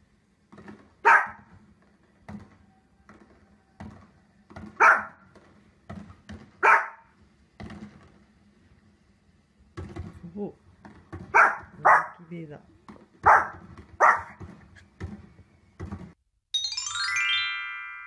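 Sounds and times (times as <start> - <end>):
fireworks pops and thuds on tv: 0.4 - 6.6, 7.5 - 8.4, 9.7 - 11.8, 12.8 - 16.2
small dog barking: 1.0 - 1.5, 4.8 - 5.2, 6.6 - 7.1, 11.3 - 12.3, 13.2 - 14.4.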